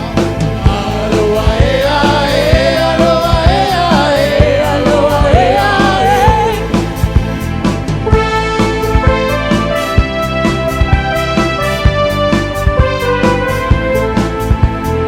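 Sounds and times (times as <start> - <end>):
person singing: 0.0 - 6.8
drum beats: 0.0 - 15.0
live band playing: 0.0 - 15.0.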